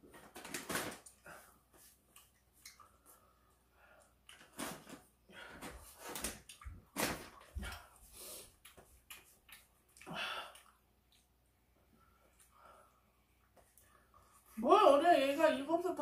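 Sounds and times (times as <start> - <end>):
wet eating smacks and chewing: 1.8 - 3.3, 6.1 - 11.5.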